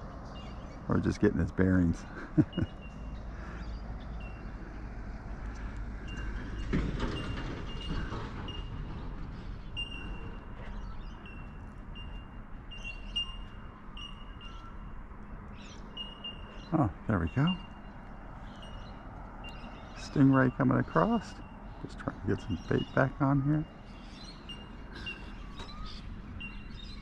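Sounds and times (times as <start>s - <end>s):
small bird chirping: 9.6s - 14.9s.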